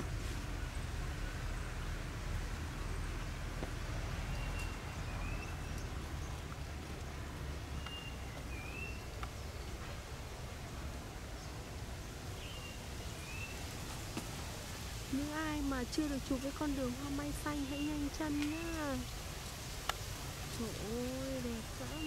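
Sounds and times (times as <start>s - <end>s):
steady low rumble: 0.0s - 22.0s
small bird chirping: 7.7s - 9.7s.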